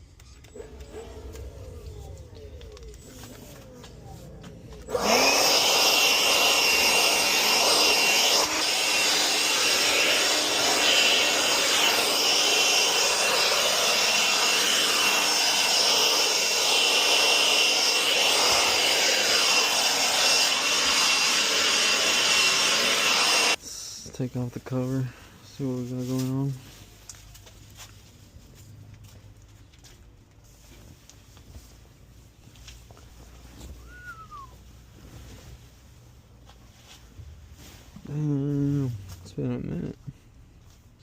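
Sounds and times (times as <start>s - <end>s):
small electric motor running: 4.8s - 23.6s.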